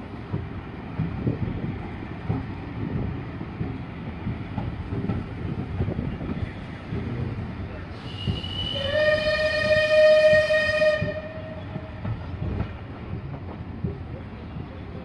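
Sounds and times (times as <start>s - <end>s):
train wheels clattering: 0.2s - 15.0s
steam locomotive whistle: 8.0s - 11.8s.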